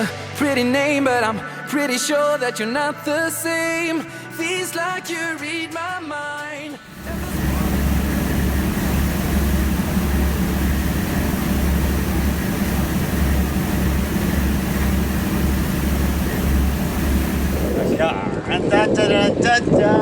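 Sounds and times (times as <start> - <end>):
low engine drone: 6.9 - 18.2.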